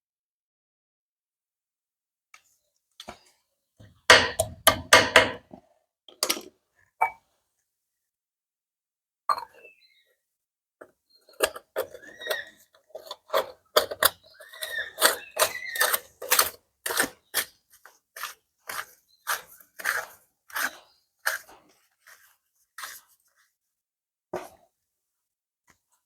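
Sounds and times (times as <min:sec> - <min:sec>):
sharp clicks and knocks: 0:04.1 - 0:05.4
short squeaks: 0:11.8 - 0:12.6, 0:14.1 - 0:16.1.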